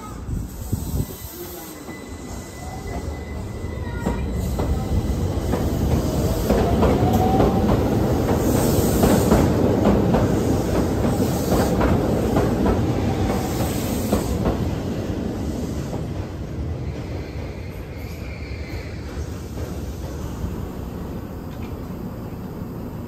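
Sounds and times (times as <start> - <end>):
wheel squeals: 0.8 - 5.2.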